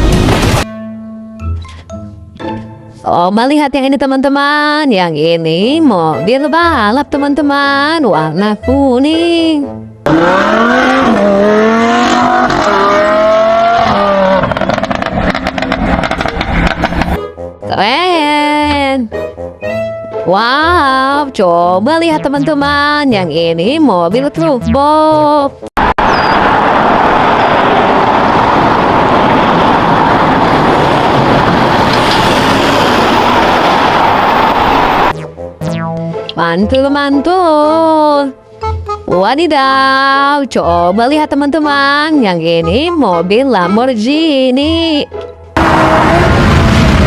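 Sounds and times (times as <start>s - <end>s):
loud rushing noise: 0.0s - 0.7s, 25.8s - 35.2s
race car engine revving: 10.1s - 17.1s, 45.6s - 47.0s.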